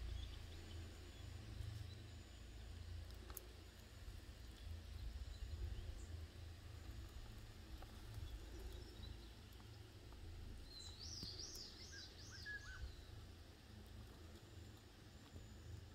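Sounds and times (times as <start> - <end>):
bird singing: 0.0 - 3.0, 4.4 - 13.4
steady low rumble: 0.0 - 15.9.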